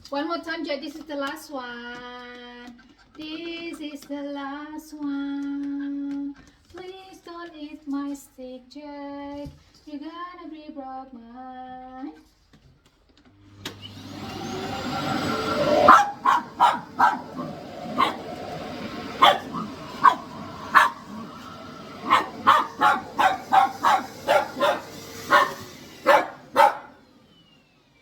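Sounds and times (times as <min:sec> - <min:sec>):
vacuum cleaner motor whine: 0:13.4 - 0:28.0
dog barking: 0:14.9 - 0:27.0.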